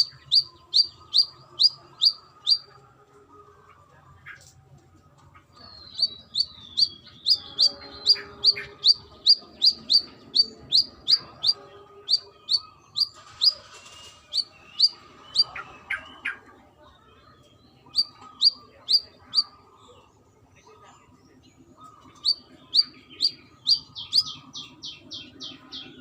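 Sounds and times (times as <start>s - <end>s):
sunbird chirping: 0.0s - 2.7s, 5.6s - 16.2s, 17.8s - 20.0s, 21.8s - 26.0s.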